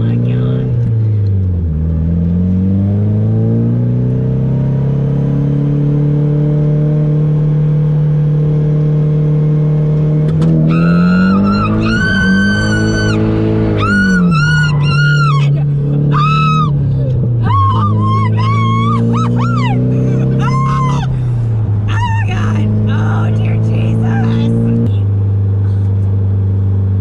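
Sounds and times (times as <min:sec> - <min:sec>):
car engine revving: 0:00.0 - 0:27.0
tires squealing: 0:10.4 - 0:24.7.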